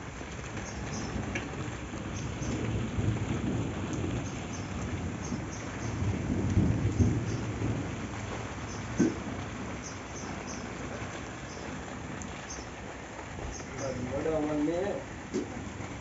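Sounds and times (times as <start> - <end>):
faint ticks of raindrops: 0.0 - 16.0
heavy rain pouring: 0.0 - 16.0
deep thunder rumble: 0.7 - 12.2.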